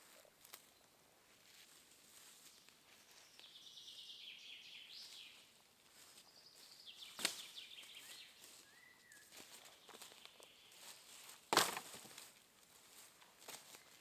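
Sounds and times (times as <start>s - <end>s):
faint bird calls: 6.2s - 11.0s
songbird trilling: 6.4s - 9.3s.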